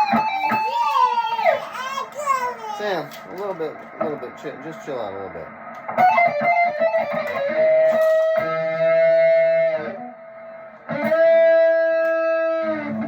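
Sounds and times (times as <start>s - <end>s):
electric guitar notes: 0.0s - 1.4s, 5.7s - 13.0s.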